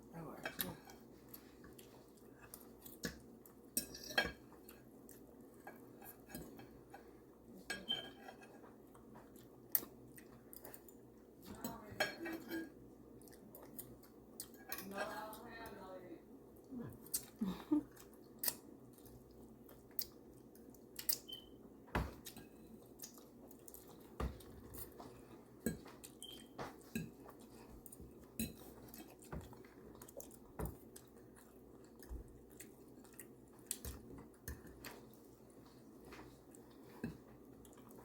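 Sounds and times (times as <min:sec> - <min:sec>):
faint room hum: 0:00.0 - 0:38.0
chewing: 0:00.5 - 0:11.2, 0:12.6 - 0:14.8, 0:16.9 - 0:21.4, 0:22.2 - 0:38.0
cutlery clicking on plates: 0:03.0 - 0:04.5.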